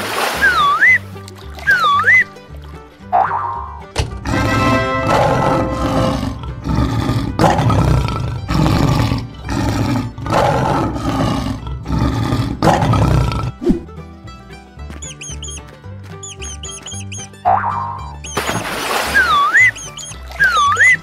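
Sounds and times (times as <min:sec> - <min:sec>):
lion roaring: 0:04.2 - 0:13.7.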